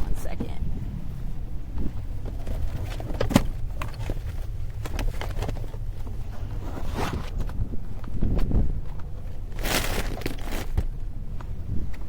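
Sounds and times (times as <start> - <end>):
low rumble: 0.0 - 12.0
items handled clicking and knocking: 2.3 - 6.1.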